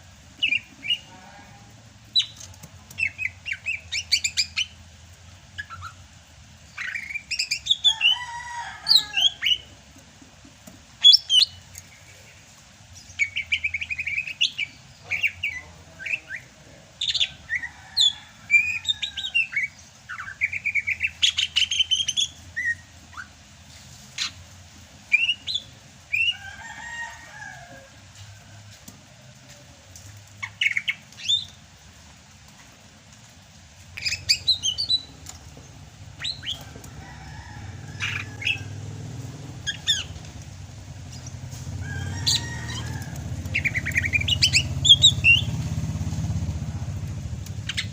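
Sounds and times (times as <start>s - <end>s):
bird singing chirps and trills: 34.0s - 36.6s, 39.5s - 41.5s, 42.1s - 45.8s.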